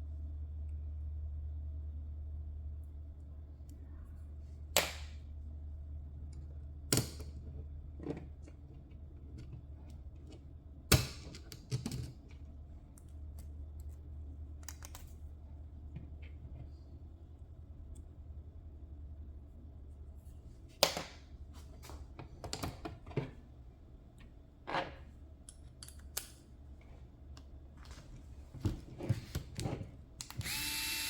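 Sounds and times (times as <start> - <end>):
low steady hum: 0.0 - 31.0
small parts and tools clicking: 30.2 - 31.0.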